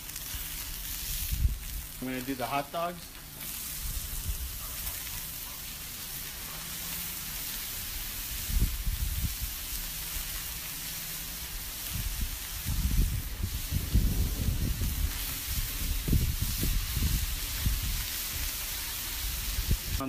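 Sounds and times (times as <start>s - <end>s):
sausages sizzling on a griddle: 0.0s - 20.0s
low rumbles: 11.4s - 18.5s.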